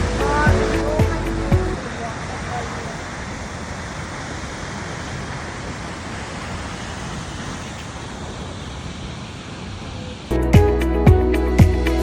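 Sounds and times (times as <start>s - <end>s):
large waterfall rushing: 0.0s - 10.4s.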